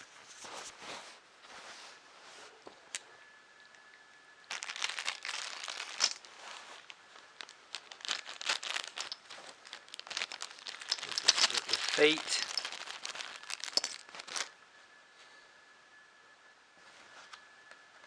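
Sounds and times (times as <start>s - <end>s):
packaging crinkling and tearing: 4.5s - 14.5s.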